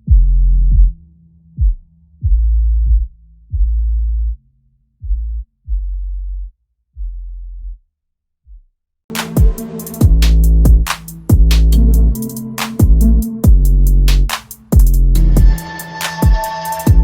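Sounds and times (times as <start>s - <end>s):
electronic music with deep bass: 9.1s - 17.0s.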